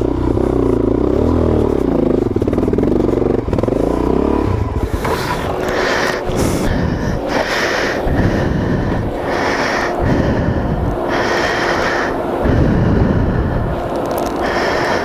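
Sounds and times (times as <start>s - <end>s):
motorcycle engine at low revs: 0.0s - 15.0s
person breathing heavily: 4.5s - 15.0s.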